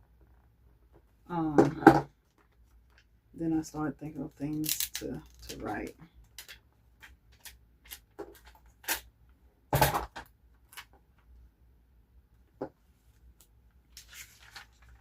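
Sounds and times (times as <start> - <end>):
paper rustling: 13.9 - 15.0.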